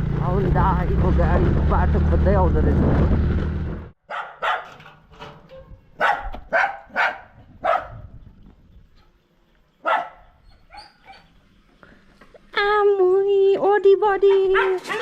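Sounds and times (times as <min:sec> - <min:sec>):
dog barking excitedly: 0:04.0 - 0:04.8, 0:06.0 - 0:08.0, 0:09.8 - 0:11.3, 0:14.3 - 0:15.0.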